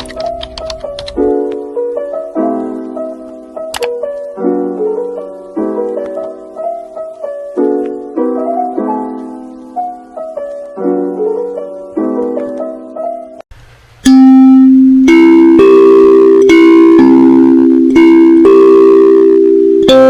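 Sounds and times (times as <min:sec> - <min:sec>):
kalimba melody: 0:14.0 - 0:20.0.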